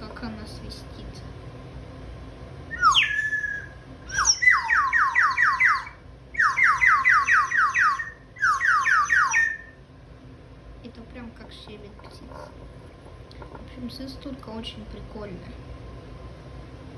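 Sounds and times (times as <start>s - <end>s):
kitchen extractor hood running: 0.0s - 16.9s
toy bird whistle chirping: 2.7s - 9.8s.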